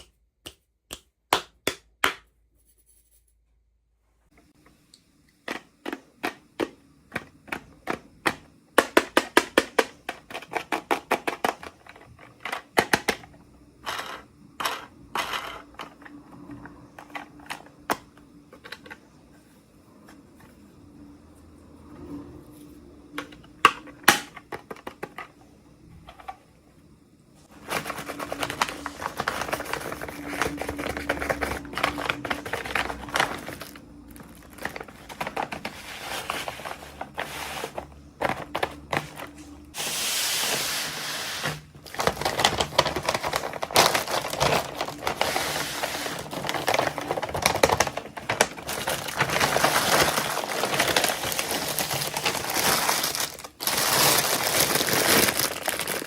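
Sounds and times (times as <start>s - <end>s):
packaging crinkling and rustling: 27.4s - 56.0s.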